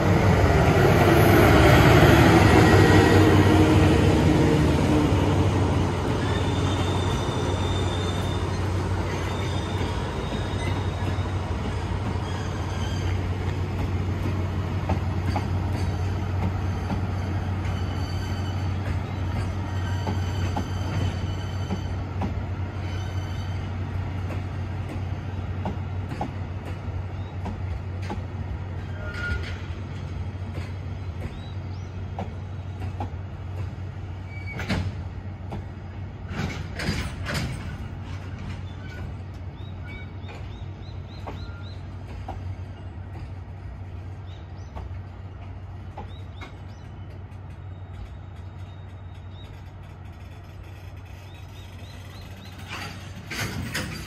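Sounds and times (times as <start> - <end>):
train clanks: 0.0 - 54.0
wheels rumbling on rails: 0.0 - 54.0
wheel squeals: 6.0 - 13.5, 15.3 - 22.0, 28.8 - 29.7, 34.2 - 34.8.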